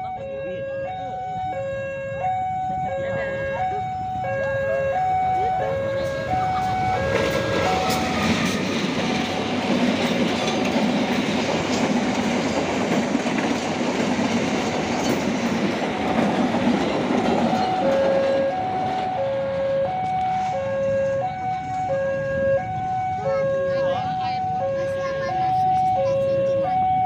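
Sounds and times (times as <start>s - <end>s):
two-tone level-crossing alarm: 0.0s - 9.6s, 17.2s - 27.0s
train wheels clattering over rails: 5.4s - 19.2s.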